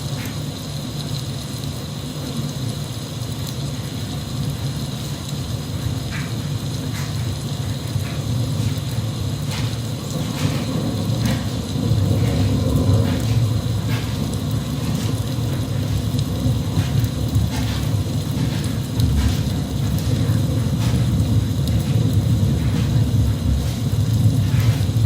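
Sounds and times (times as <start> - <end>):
sharp raindrops: 0.0 - 25.0
steady rain: 0.0 - 25.0
low rumble: 10.2 - 25.0.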